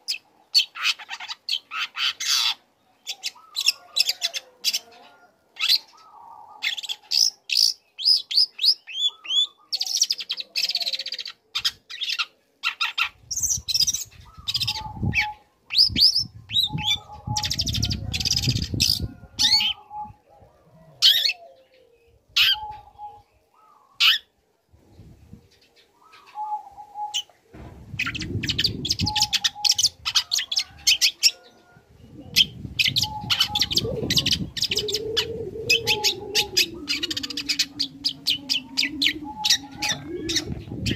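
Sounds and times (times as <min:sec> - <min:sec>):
bird singing chirps and trills: 0:28.0 - 0:40.9.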